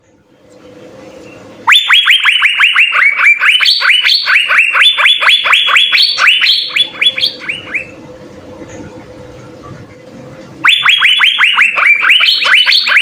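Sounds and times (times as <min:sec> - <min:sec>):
bird singing sharp upward notes: 0:03.2 - 0:08.0.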